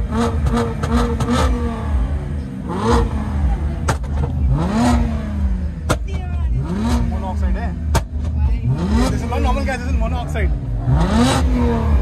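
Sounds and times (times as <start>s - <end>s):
engine revving in blips: 0.0s - 12.0s.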